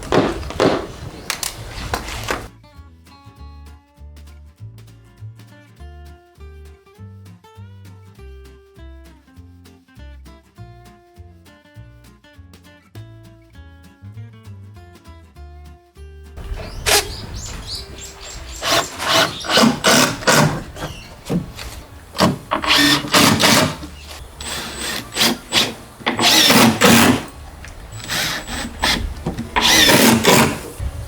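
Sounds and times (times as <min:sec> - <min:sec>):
tools scraping and knocking wood: 0:00.0 - 0:02.5, 0:16.4 - 0:31.0.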